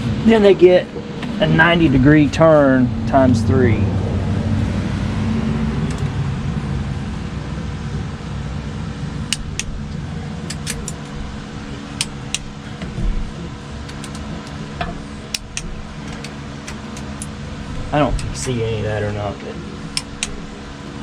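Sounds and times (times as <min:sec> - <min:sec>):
steady low hum: 0:00.0 - 0:21.0
hand tools clicking metallically: 0:10.4 - 0:11.2, 0:13.8 - 0:17.4, 0:19.9 - 0:20.4.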